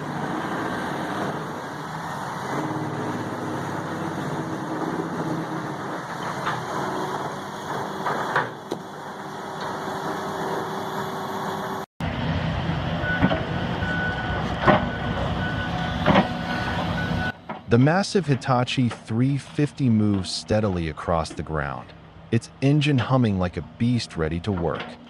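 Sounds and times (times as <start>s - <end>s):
heavy machinery diesel engine: 0.0s - 25.0s.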